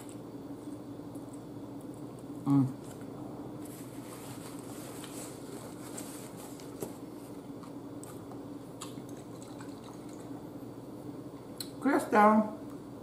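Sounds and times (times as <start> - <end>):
paper napkin rustling: 3.6 - 7.4
chewing smacks: 7.6 - 10.3.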